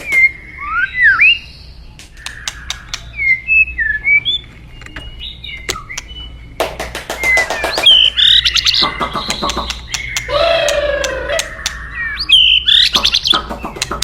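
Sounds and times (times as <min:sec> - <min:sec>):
bird singing whistled notes: 0:00.0 - 0:06.6, 0:07.2 - 0:13.9
bird rattling chatter: 0:07.0 - 0:11.8.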